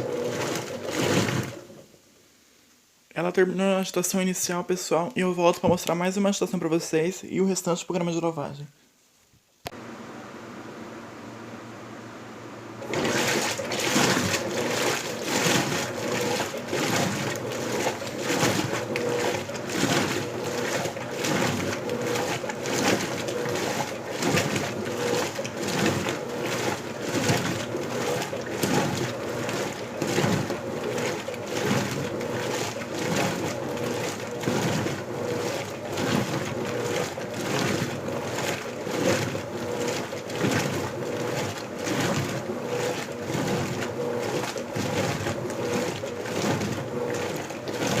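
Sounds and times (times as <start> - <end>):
washing machine agitator swishing: 0.0 - 1.8, 12.8 - 48.0
water sloshing: 0.0 - 1.8, 12.8 - 48.0.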